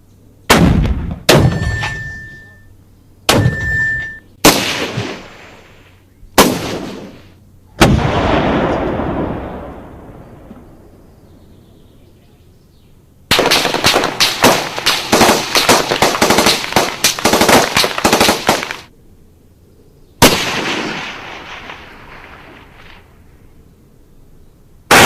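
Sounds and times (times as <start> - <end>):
automatic gunfire burst: 13.3 - 18.9.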